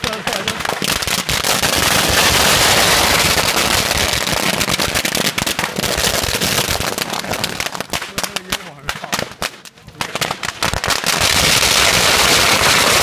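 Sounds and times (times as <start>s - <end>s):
firecrackers crackling: 0.0s - 13.0s.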